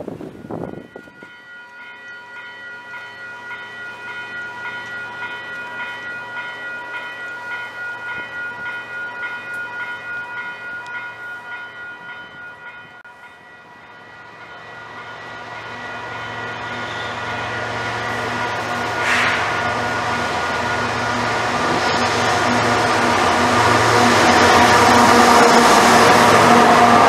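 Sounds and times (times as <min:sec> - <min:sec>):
train rumble: 0:00.0 - 0:27.0
bell ringing: 0:00.4 - 0:22.7
locomotive engine: 0:14.3 - 0:27.0.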